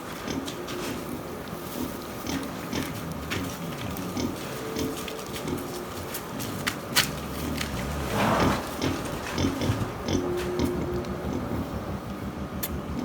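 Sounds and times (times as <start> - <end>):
pigs grunting: 0.2 - 12.0.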